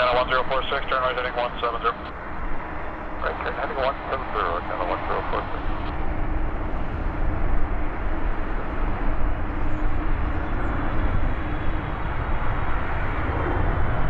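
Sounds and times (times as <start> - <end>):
jet engines rumbling: 0.0 - 14.0
faint low hum: 3.2 - 6.0.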